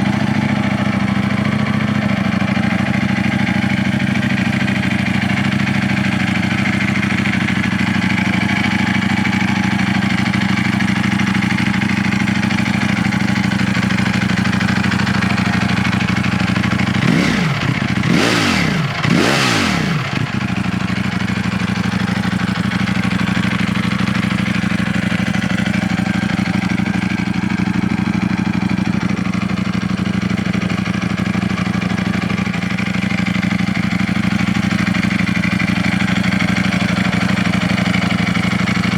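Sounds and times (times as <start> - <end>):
motorcycle engine idling: 0.0 - 38.9
engine throttle blips: 12.9 - 21.0.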